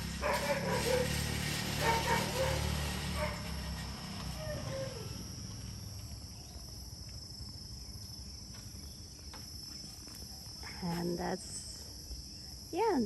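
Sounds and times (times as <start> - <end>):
high-pitched insect drone: 0.0 - 6.9.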